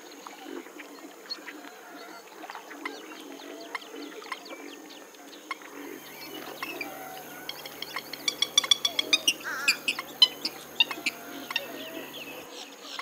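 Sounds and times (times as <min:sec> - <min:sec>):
swamphen clicking and cackling: 0:05.9 - 0:12.5.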